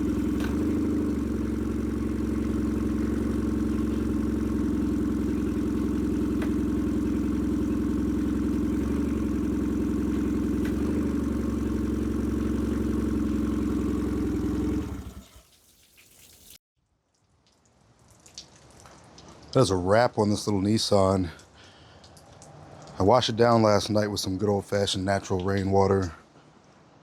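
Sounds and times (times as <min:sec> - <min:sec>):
outboard motor running: 0:00.0 - 0:15.3.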